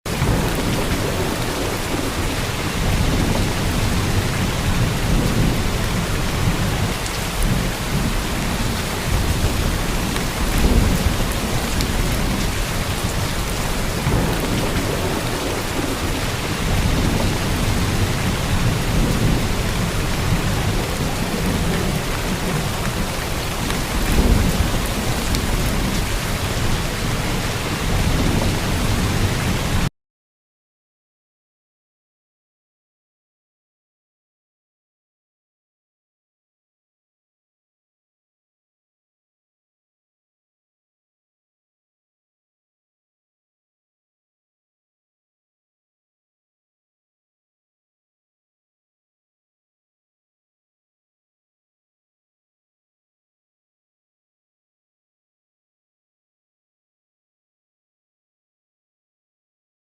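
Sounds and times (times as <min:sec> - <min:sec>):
heavy rain pouring: 0:00.1 - 0:29.9.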